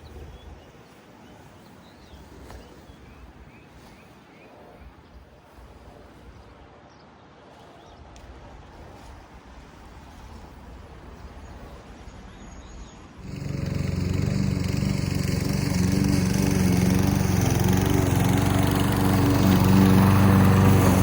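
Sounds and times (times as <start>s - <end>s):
outdoor background: 0.0s - 21.0s
lawn mower engine running: 13.2s - 21.0s.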